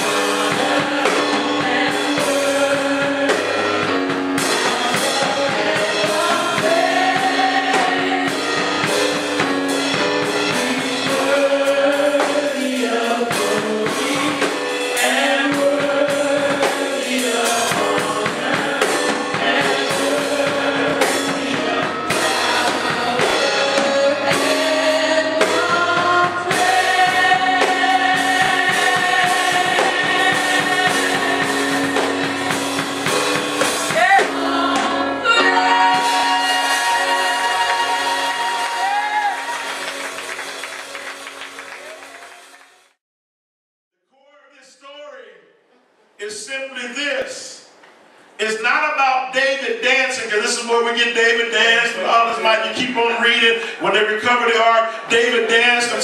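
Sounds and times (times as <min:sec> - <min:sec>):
drum kit beat: 0:00.0 - 0:42.2
gospel singers: 0:00.0 - 0:42.5, 0:46.2 - 0:56.0.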